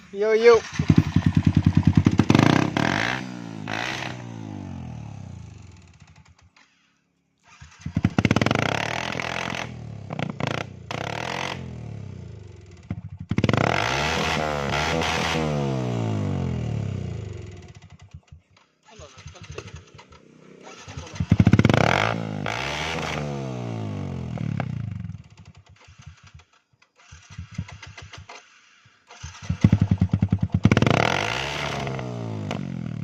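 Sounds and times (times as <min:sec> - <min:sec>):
motorcycle engine revving: 0:00.0 - 0:06.6, 0:07.4 - 0:33.0.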